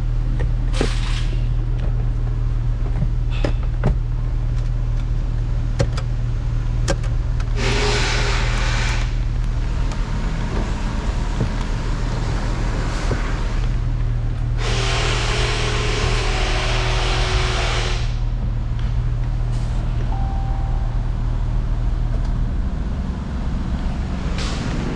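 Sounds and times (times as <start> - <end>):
low engine hum: 0.0 - 24.9
hissing bursts: 7.6 - 9.2, 14.6 - 18.3.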